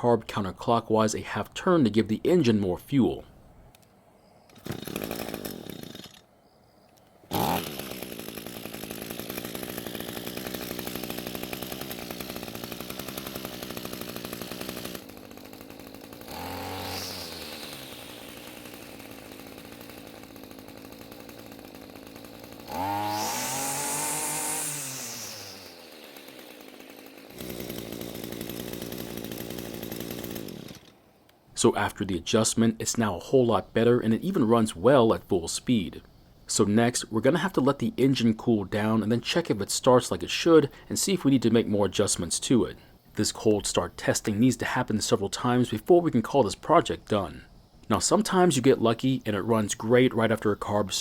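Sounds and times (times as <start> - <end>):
string trimmer engine revving: 4.5 - 6.2, 7.3 - 31.0.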